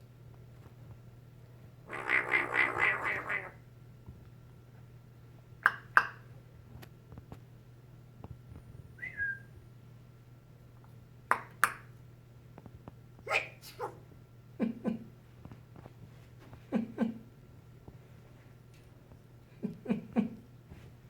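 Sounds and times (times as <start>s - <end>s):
bird imitating a sneeze: 1.9s - 3.6s
whistled bird chirp: 9.0s - 9.6s.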